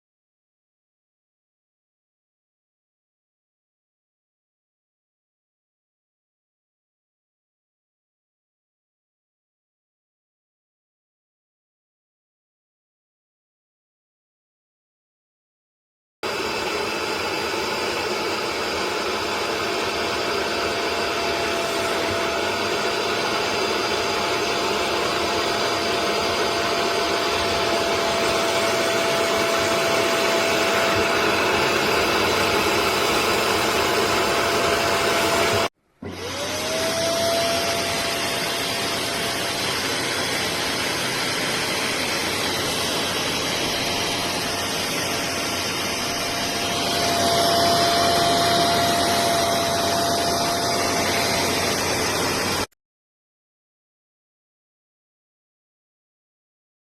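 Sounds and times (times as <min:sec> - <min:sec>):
wet vacuum motor whine: 0:16.2 - 0:52.7.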